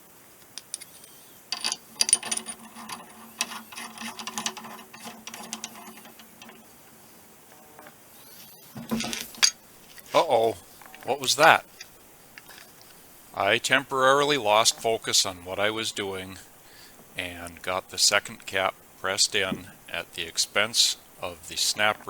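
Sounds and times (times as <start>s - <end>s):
faint steady hum: 0.0s - 22.0s
metal clicking and clinking: 0.6s - 6.7s, 8.8s - 10.2s, 10.8s - 13.0s
metal scrape: 0.7s - 12.9s.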